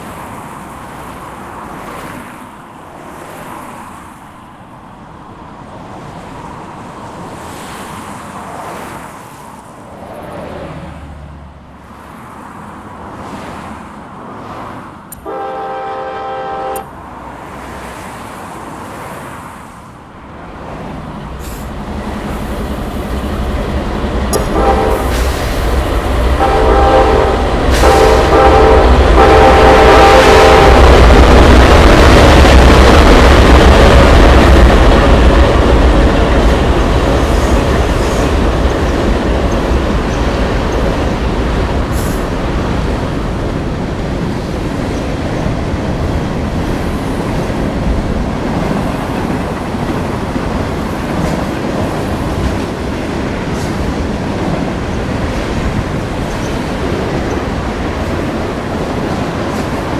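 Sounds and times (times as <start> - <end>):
locomotive air horn blasts: 15.1 - 17.0, 24.3 - 25.4, 26.4 - 31.0
train rumble approaching: 15.1 - 59.9.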